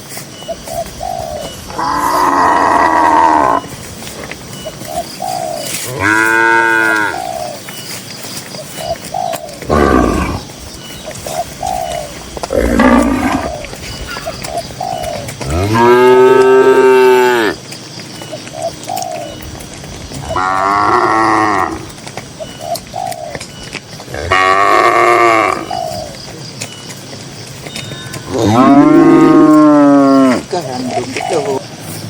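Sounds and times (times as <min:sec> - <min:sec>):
cattle mooing: 0:01.7 - 0:03.7, 0:05.8 - 0:07.3, 0:09.6 - 0:10.5, 0:12.4 - 0:13.6, 0:15.4 - 0:17.6, 0:20.2 - 0:22.0, 0:24.1 - 0:25.7, 0:28.1 - 0:30.6.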